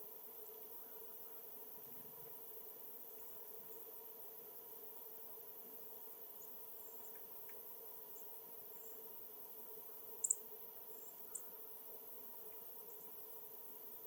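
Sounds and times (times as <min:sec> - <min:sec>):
faint steady hum and hiss: 0:00.0 - 0:14.0
small bird chirping: 0:10.2 - 0:11.6.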